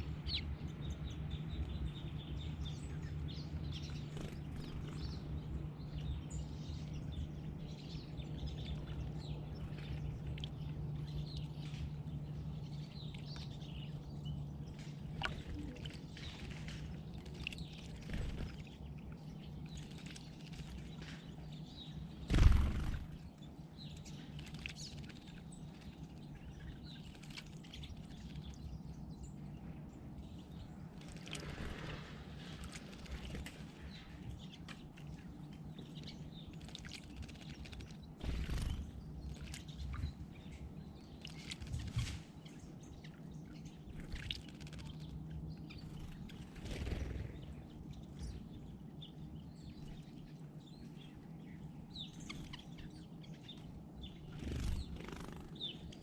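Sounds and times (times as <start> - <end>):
faint bird chirps: 17.2 - 56.0.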